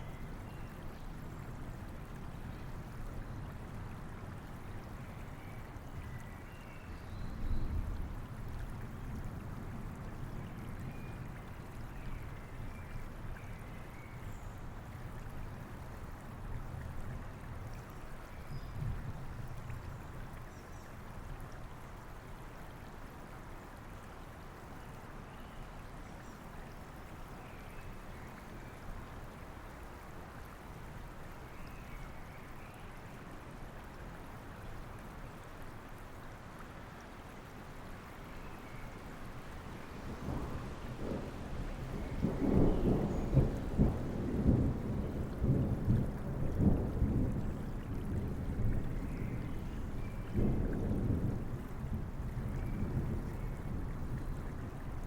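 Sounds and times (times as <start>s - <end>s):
steady rain: 0.0s - 55.0s
thunder rumbling: 40.1s - 48.9s.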